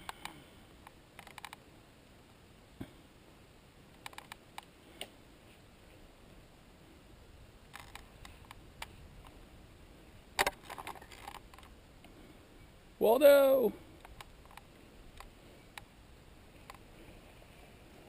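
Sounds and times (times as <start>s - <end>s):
mountain bike rattling and clicking: 7.7s - 9.0s, 10.4s - 11.7s.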